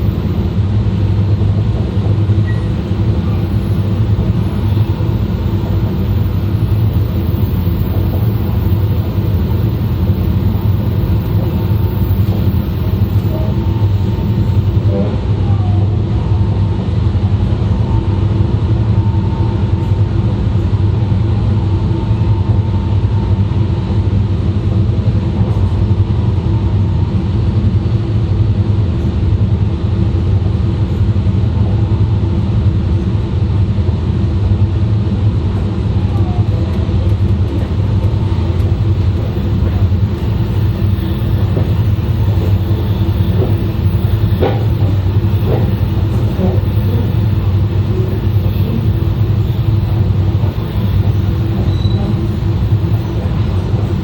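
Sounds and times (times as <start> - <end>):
train wheels rumbling on track: 0.0 - 54.0.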